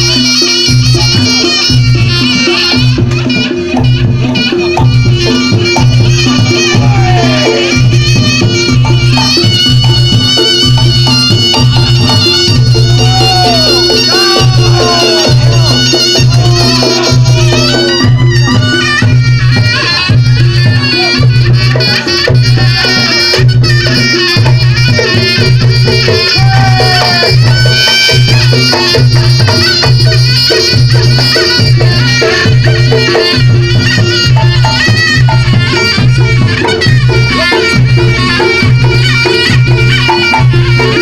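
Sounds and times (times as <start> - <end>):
percussion: 0.0 - 41.0
reedy shawm melody: 0.0 - 41.0.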